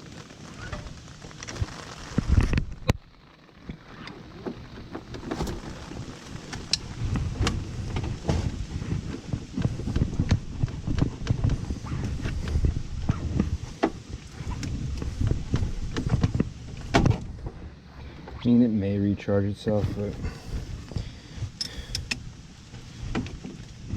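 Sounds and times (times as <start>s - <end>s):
heavy rain: 0.0s - 17.7s
wind on microphone: 5.4s - 17.7s.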